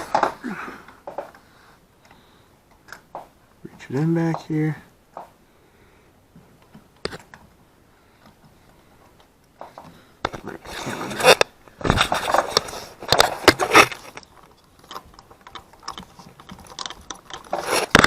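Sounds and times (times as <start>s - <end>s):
socket clicking and scraping on metal: 12.1s - 18.0s.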